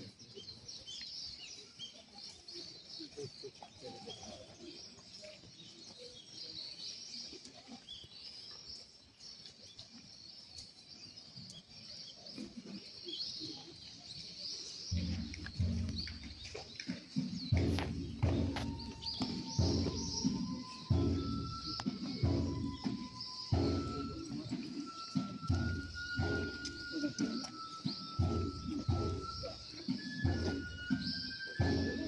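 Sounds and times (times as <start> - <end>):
small birds chirping: 0.0 - 32.0
music: 14.9 - 32.0.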